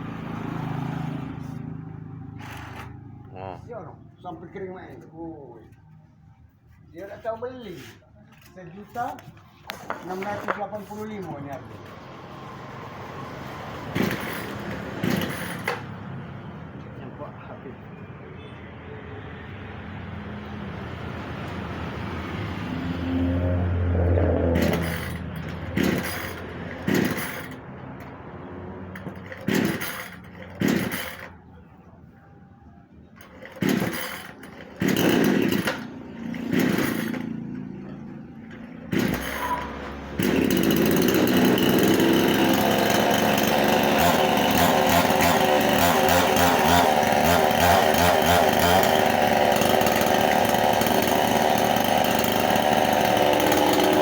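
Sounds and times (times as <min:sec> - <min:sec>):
chainsaw pull-starting and running: 0:00.0 - 0:03.4, 0:07.8 - 0:16.0, 0:22.5 - 0:31.5, 0:33.1 - 0:54.0.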